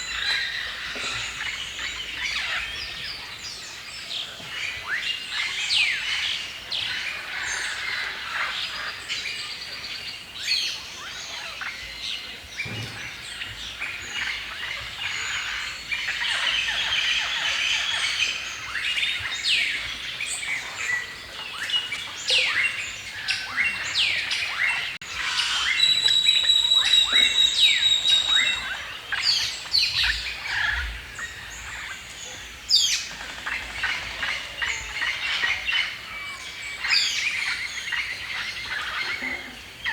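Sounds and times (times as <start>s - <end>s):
songbirds chirping and singing: 0.0s - 39.9s
bird whistling high note: 25.4s - 28.6s.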